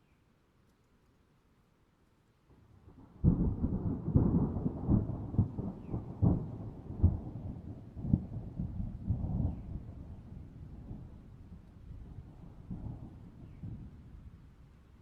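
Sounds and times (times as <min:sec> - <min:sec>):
thunder rumbling and cracking: 0:02.9 - 0:14.0.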